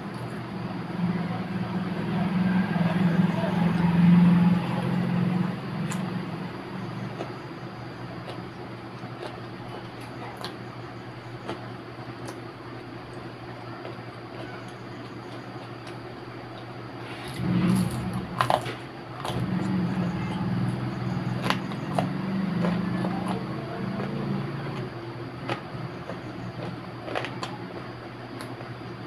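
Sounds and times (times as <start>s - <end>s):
steady low hum: 0.0s - 29.0s
chewing with wet mouth clicks: 5.8s - 6.1s, 7.0s - 12.5s, 20.7s - 28.8s.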